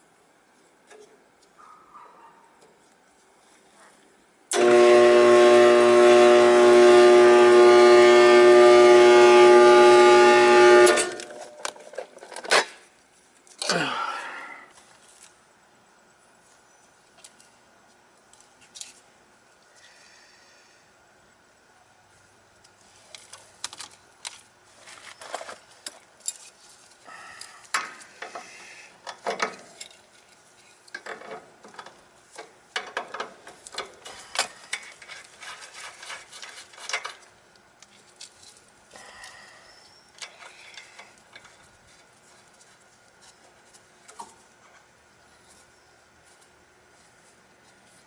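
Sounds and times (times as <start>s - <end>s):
metallic clinks and scrapes of tools: 23.0s - 28.4s, 29.1s - 43.8s.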